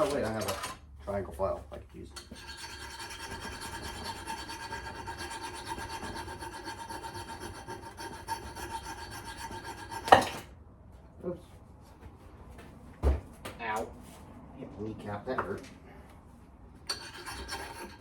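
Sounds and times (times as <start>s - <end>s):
file rasping on steel: 2.2s - 10.4s, 16.9s - 18.0s.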